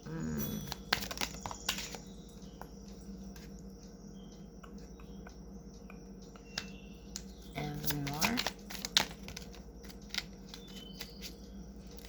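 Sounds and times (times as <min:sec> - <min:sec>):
cards being shuffled: 0:00.7 - 0:02.0, 0:07.8 - 0:11.3.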